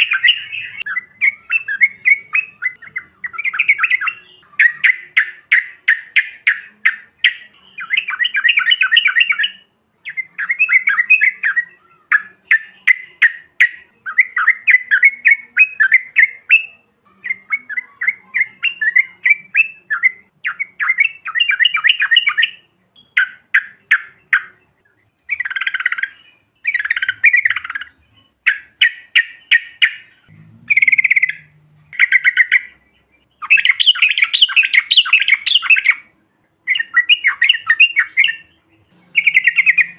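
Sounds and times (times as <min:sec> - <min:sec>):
bird singing chattering phrases: 0:00.0 - 0:39.9.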